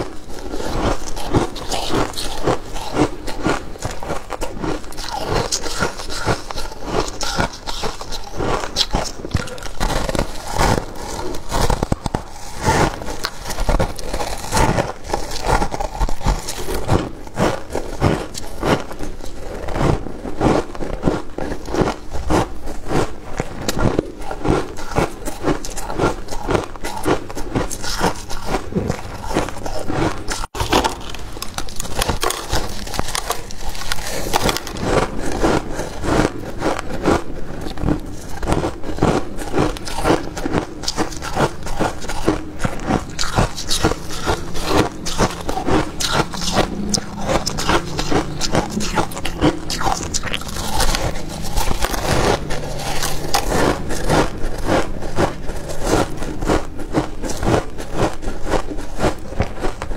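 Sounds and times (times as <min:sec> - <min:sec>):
frost crunching being chewed: 0:00.0 - 0:59.9
scraping: 0:27.6 - 0:59.9.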